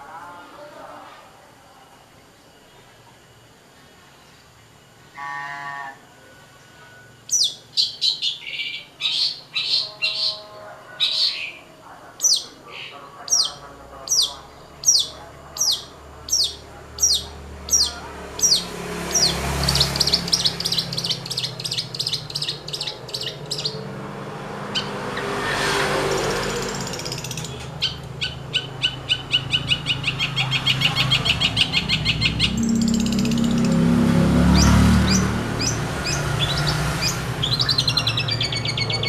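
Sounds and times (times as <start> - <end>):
rapid ticking chatter: 12.1 - 24.0, 26.0 - 33.9.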